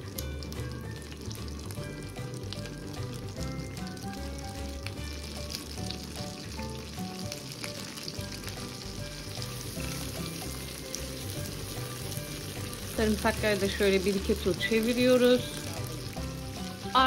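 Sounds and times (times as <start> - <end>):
light background music: 0.0 - 17.0
paste sizzling in frying pan: 0.0 - 17.0.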